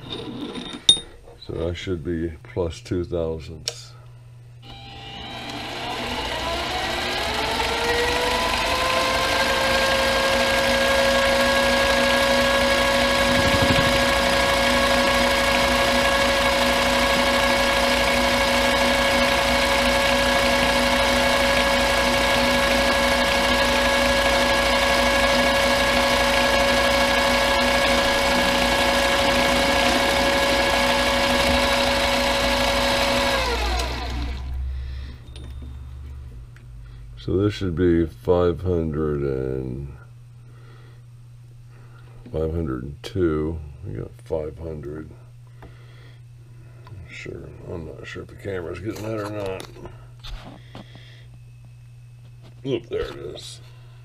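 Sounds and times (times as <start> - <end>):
lathe motor whining: 4.6 - 34.6.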